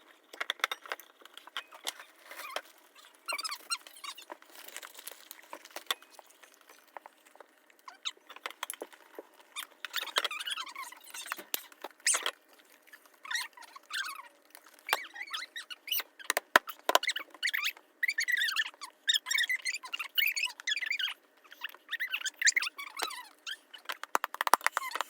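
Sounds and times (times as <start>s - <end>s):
wavering high squeaks: 1.7s - 4.4s.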